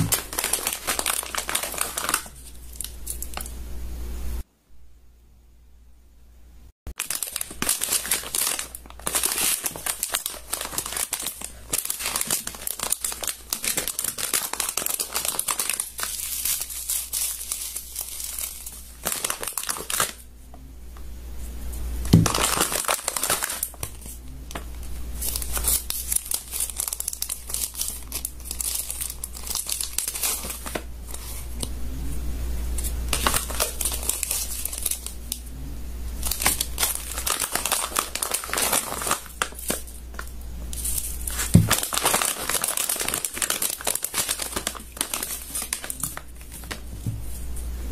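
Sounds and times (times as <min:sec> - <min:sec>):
low hum: 0:30.9 - 0:33.2, 0:35.1 - 0:36.3.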